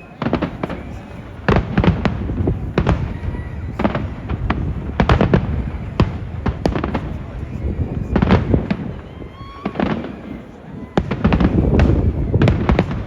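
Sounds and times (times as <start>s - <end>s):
firework bangs and cracks: 0.0s - 13.0s
rumbling distant explosions: 0.2s - 10.4s, 11.0s - 13.0s.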